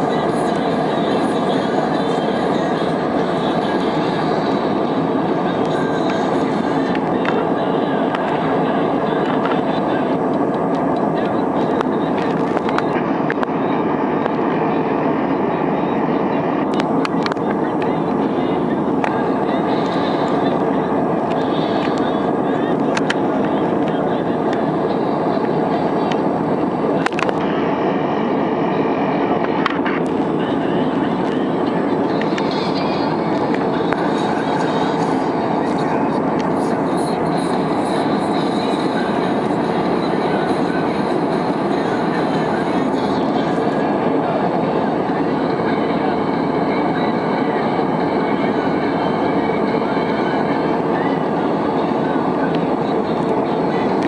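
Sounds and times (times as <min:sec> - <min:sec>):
airliner cabin roar: 0:00.0 - 0:54.0.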